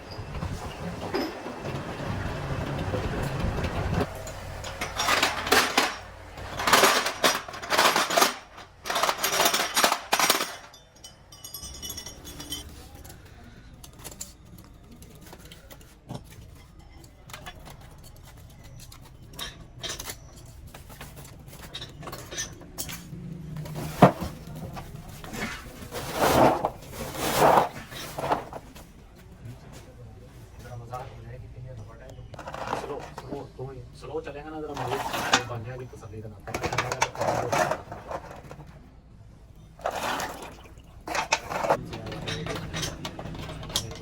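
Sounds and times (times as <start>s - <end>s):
light metal clinks: 10.7s - 13.2s
metal scraping on metal: 34.7s - 35.9s, 39.8s - 44.0s.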